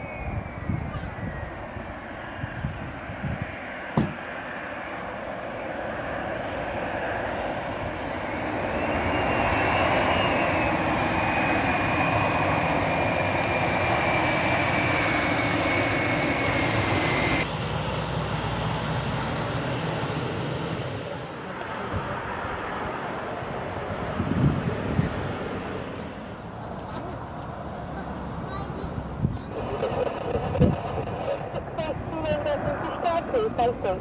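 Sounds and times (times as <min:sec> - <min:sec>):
jet engines whining: 0:00.0 - 0:34.0
sharp knock: 0:04.0 - 0:04.2.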